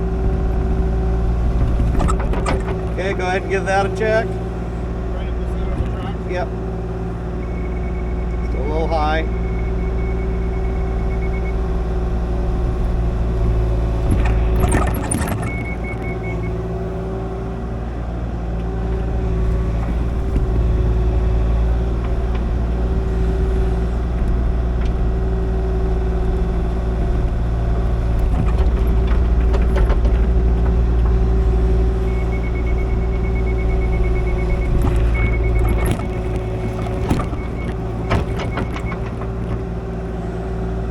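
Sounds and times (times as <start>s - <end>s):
excavator diesel engine running: 0.0s - 40.9s
clatter: 0.4s - 3.4s, 21.5s - 39.8s.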